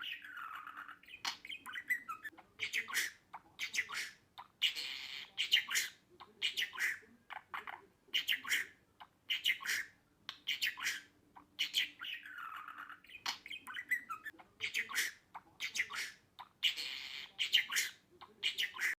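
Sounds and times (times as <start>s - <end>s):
budgerigar chirping and chattering: 0.0s - 19.0s.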